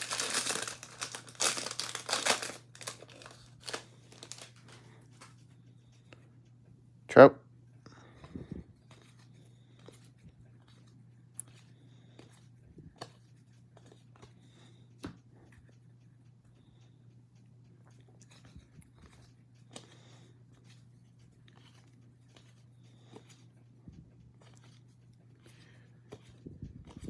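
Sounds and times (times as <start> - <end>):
trading cards clicking and rustling: 0.0 - 5.3.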